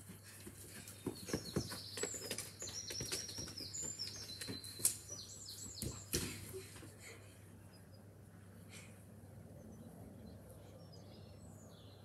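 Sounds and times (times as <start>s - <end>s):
bird chirping: 0.2s - 6.4s, 9.5s - 12.0s.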